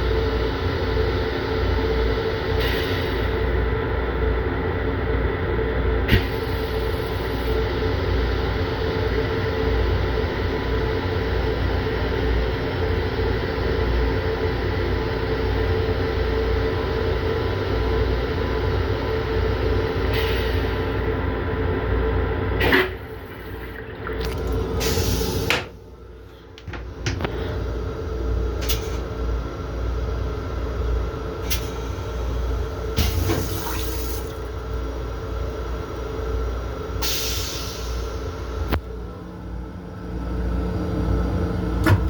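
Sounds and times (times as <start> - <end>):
railcar hum: 0.0 - 42.0
toilet flushing: 22.4 - 25.8, 33.0 - 35.0.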